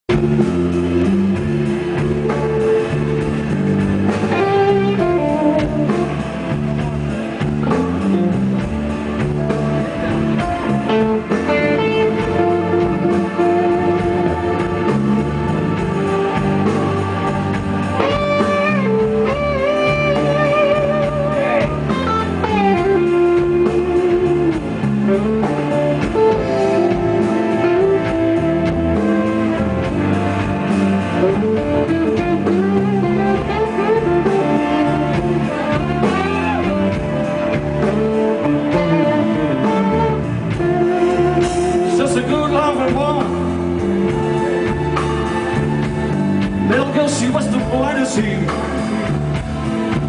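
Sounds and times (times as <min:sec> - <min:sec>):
bass: 0:00.0 - 0:50.0
drums: 0:00.0 - 0:50.0
lead guitar with bent notes: 0:00.1 - 0:50.0.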